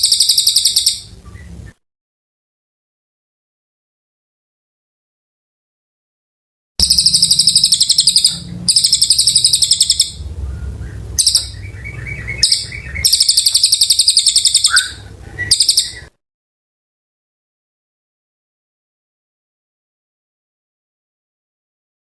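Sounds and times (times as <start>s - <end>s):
bird singing high trilled phrases: 0.0s - 1.6s, 6.8s - 16.1s.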